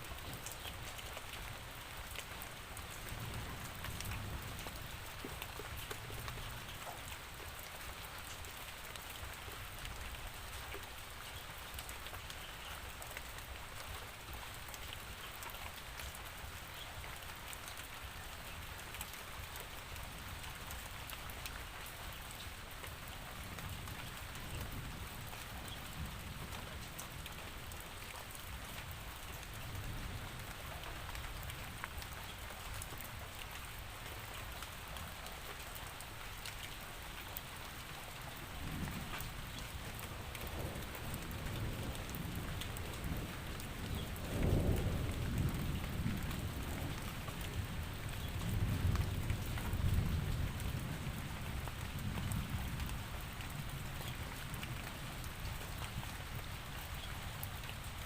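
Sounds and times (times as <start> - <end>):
rain falling: 0.0 - 58.0
low rolling thunder: 40.2 - 53.8.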